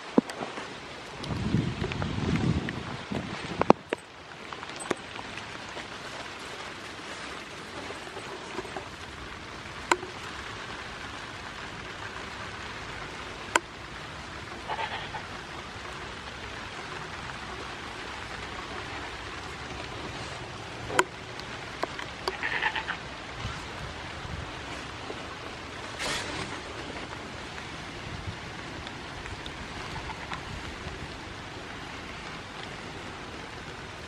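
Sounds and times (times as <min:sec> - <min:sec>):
steady rain falling: 0:00.0 - 0:34.0.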